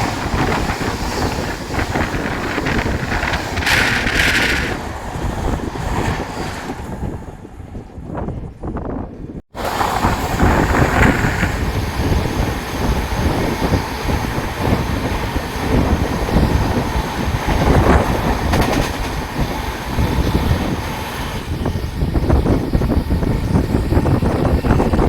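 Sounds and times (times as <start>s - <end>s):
rattling clatter: 0.0s - 7.3s
train wheels rumbling on rails: 0.0s - 25.0s
wind buffeting microphone: 0.0s - 25.0s.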